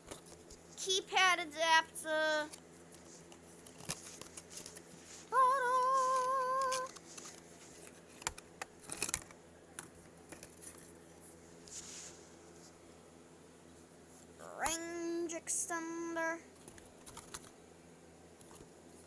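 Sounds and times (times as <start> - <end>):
person singing a held note: 5.4 - 6.9
packaging clicks and rustles: 6.2 - 11.0, 16.6 - 17.6.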